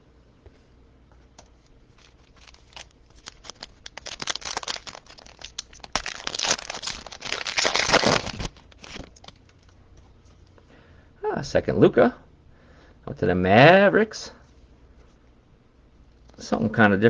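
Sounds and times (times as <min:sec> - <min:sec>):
foil wrapper tearing and crinkling: 0:02.0 - 0:09.7.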